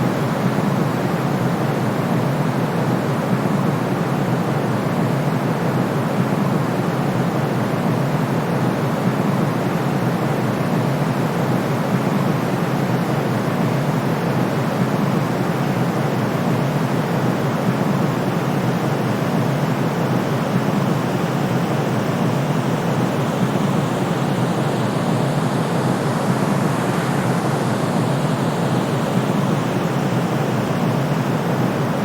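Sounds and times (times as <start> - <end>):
white noise hiss: 6.2 - 32.0.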